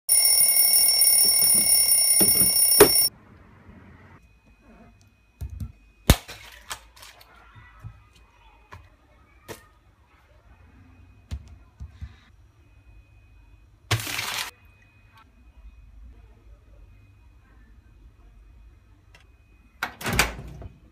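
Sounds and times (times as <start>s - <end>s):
bell ringing loudly: 0.1s - 3.1s.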